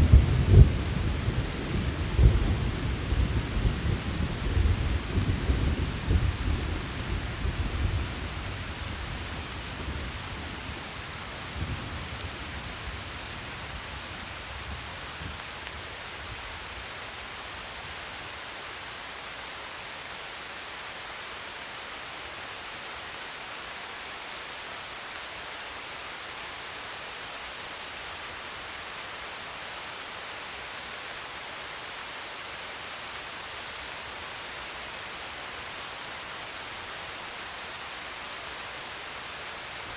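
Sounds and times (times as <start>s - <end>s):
thunder rumbling: 0.0s - 13.6s
steady rain: 0.0s - 39.9s.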